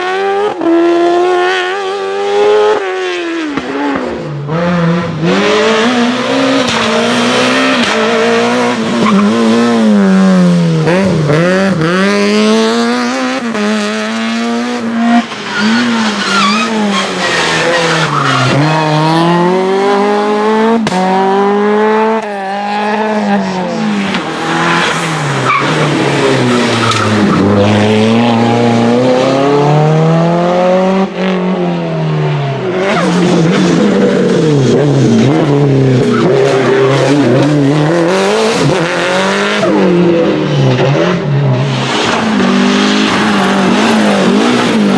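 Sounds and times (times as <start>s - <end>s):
racing car engines revving: 0.0s - 44.9s
tyre squeal: 15.2s - 18.9s.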